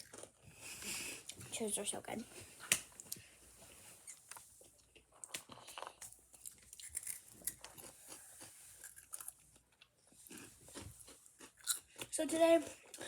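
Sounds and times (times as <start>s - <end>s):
person chewing crunchy snacks: 0.0s - 0.4s, 4.8s - 13.0s.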